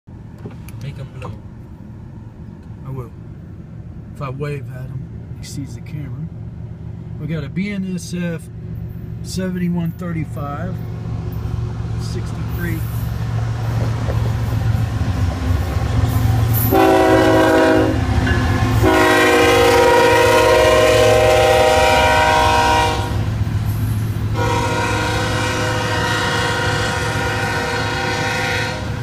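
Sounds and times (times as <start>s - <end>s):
steady low rumble: 0.1s - 29.0s
locomotive air horn blasts: 16.5s - 23.3s, 24.3s - 29.0s.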